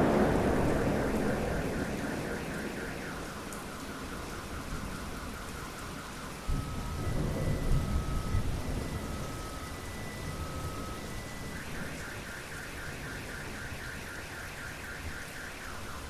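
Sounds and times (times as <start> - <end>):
thunder rumbling: 0.0 - 12.0
steady rain falling: 0.0 - 16.0.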